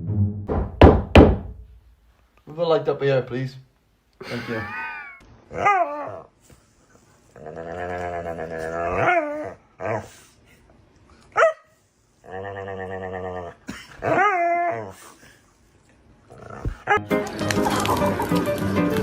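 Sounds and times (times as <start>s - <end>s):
dog yelping: 5.5s - 6.3s, 11.4s - 11.7s
dog growling: 7.3s - 10.1s, 12.2s - 15.0s, 16.3s - 17.0s.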